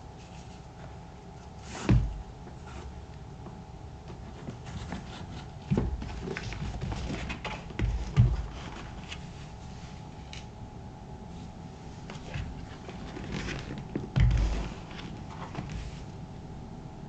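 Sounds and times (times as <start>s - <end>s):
boot thumping on hard surface: 1.8s - 2.2s, 5.7s - 8.8s, 13.9s - 15.8s.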